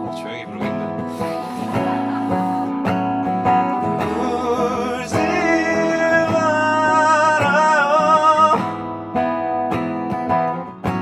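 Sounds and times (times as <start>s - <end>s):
man singing: 0.0s - 2.2s, 3.7s - 8.8s
acoustic guitar strumming: 0.0s - 11.0s.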